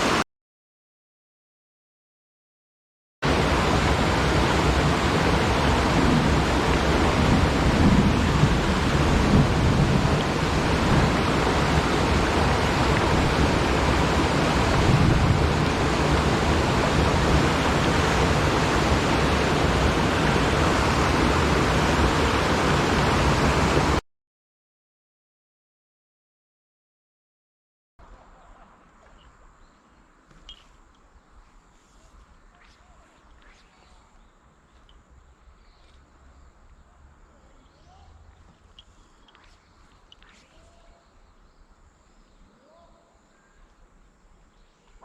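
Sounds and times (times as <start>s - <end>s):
mountain stream rushing: 0.0s - 0.2s, 3.2s - 24.0s.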